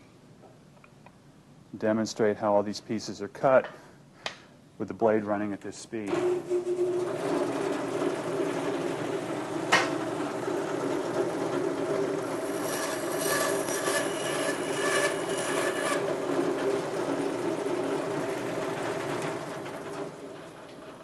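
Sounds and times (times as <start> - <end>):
bandsaw running: 6.1 - 19.4
bandsaw blade rasping through wood: 12.3 - 16.2.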